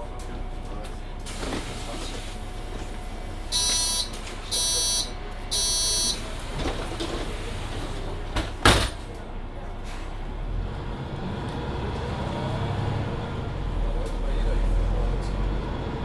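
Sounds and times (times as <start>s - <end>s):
bus engine low hum: 0.0s - 16.0s
electronic door warning beeps: 3.5s - 6.7s.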